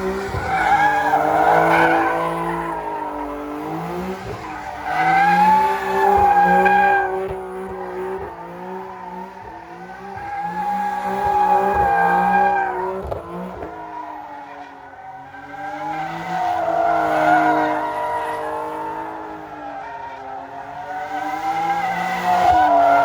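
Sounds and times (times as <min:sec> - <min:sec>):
car engine revving high: 0:00.0 - 0:14.2
tires squealing: 0:00.0 - 0:23.0.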